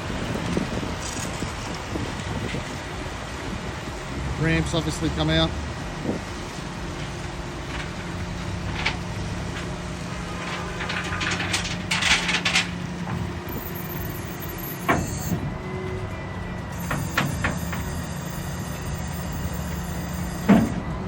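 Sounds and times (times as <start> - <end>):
low mechanical hum: 5.5 - 21.0
metal ramps clattering: 8.7 - 14.0.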